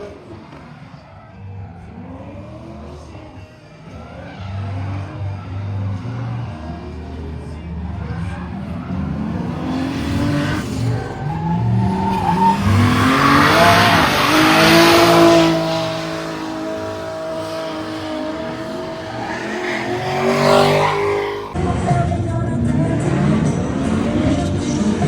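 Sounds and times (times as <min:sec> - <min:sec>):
car engine revving: 0:00.0 - 0:25.0
tyres squealing: 0:09.2 - 0:21.6.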